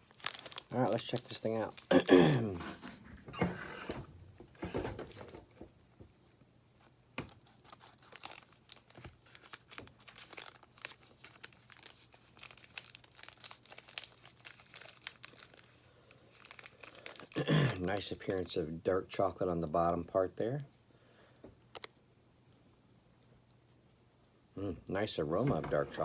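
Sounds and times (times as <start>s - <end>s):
plastic wrapper crinkling: 0.0s - 1.9s, 7.2s - 18.5s.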